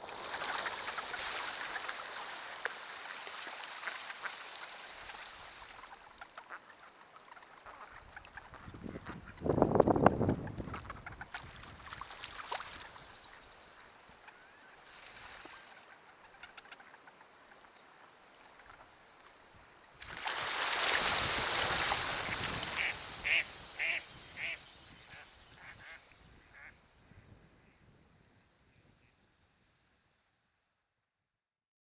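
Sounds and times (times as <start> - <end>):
water splashes and clicks: 0.0 - 6.6, 10.4 - 13.2, 20.0 - 22.8
ducks quacking: 22.2 - 26.7.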